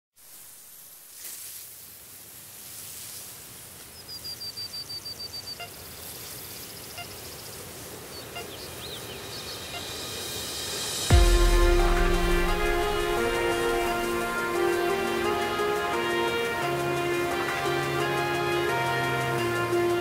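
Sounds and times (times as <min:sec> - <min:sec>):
outdoor background hiss: 0:00.2 - 0:20.0
bird trilling: 0:08.1 - 0:10.0.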